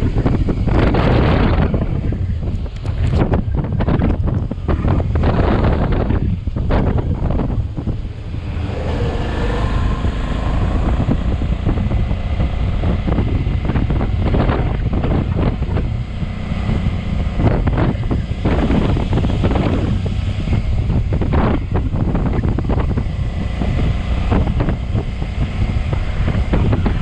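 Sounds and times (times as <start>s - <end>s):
motorcycle engine running: 0.0s - 27.0s
wind buffeting microphone: 0.0s - 27.0s.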